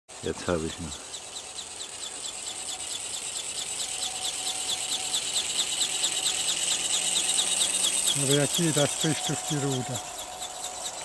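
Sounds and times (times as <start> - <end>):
model bird motor whirring: 0.1 - 11.0
wing mechanism beating rapidly: 0.1 - 11.0.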